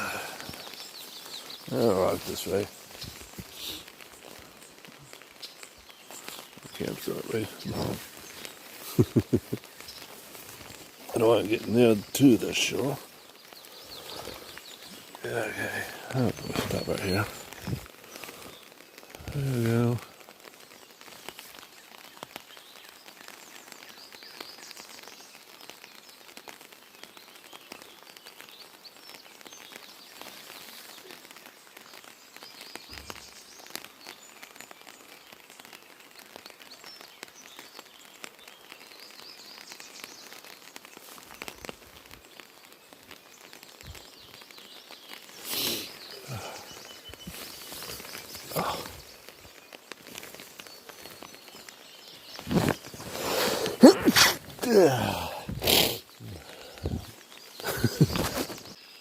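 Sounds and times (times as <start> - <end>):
birds chirping: 0.0 - 59.0
light rain patter: 0.0 - 59.0.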